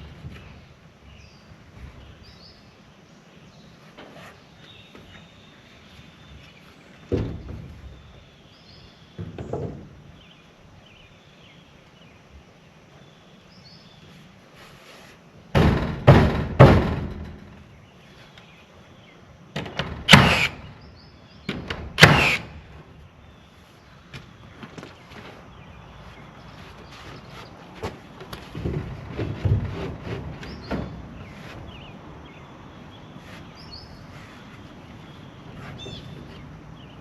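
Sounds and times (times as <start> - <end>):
heavy thuds and knocks: 7.1 - 8.0, 15.5 - 17.8, 21.4 - 22.4, 27.8 - 31.9.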